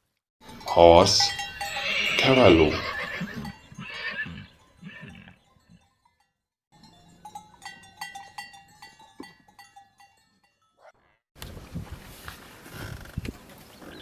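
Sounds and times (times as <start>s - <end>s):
livestock bell clanking: 0.4s - 10.9s.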